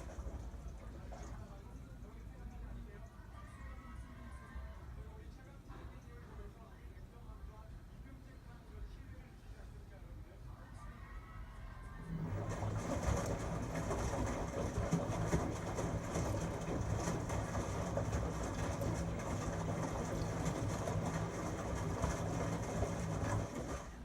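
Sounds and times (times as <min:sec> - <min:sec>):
washing machine drum turning: 0:00.0 - 0:01.4, 0:12.1 - 0:24.0.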